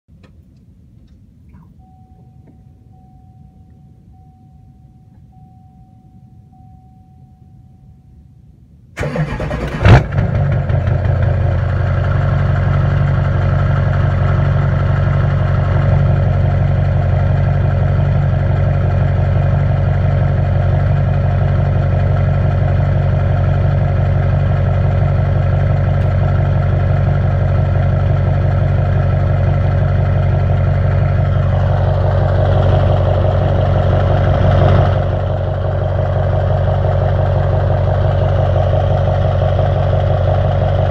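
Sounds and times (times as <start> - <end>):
vehicle engine idling: 9.0 - 40.9.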